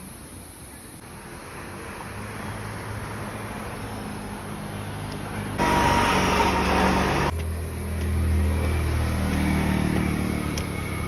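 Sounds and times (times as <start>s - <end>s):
vehicle engine running: 5.3s - 11.0s
loud rushing noise: 5.6s - 7.3s.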